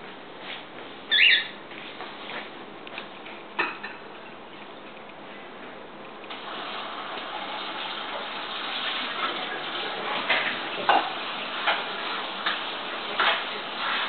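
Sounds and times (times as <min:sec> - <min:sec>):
running water: 0:06.3 - 0:14.0.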